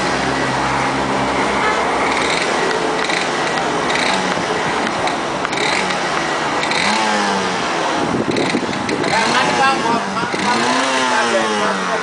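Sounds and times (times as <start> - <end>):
dirt bike engine clattering: 2.1 - 7.2, 8.3 - 11.6.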